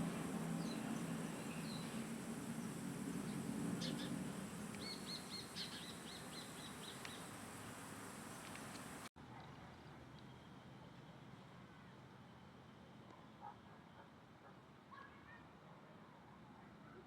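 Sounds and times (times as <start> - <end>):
small songbird chirping: 0.0 - 9.1.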